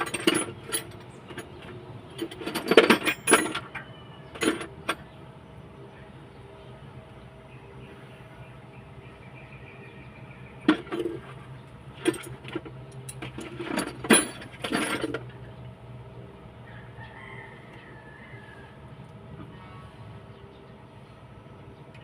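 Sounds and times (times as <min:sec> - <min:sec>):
metal tools clinking on engine parts: 0:00.0 - 0:05.2, 0:10.6 - 0:15.7
rooster crowing: 0:03.7 - 0:04.4, 0:16.6 - 0:18.9.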